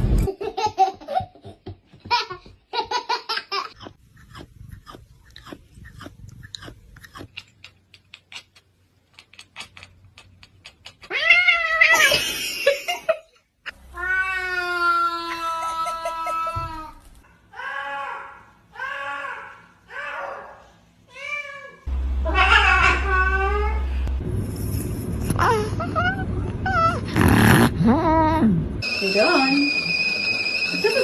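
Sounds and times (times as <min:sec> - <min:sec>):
cat meowing: 0:21.1 - 0:23.9.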